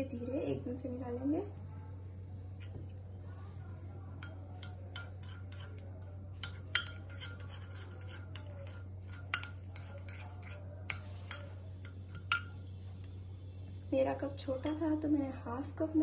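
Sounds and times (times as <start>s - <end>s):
low hum: 0.0s - 16.0s
utensil clinking against a bowl: 4.0s - 12.8s.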